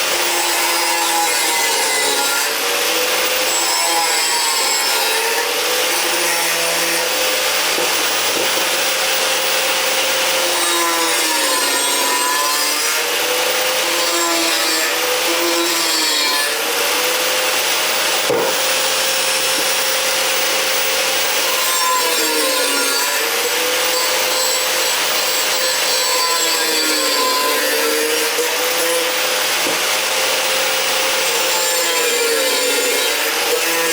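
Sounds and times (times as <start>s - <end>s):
angle grinder cutting metal: 0.0s - 33.9s.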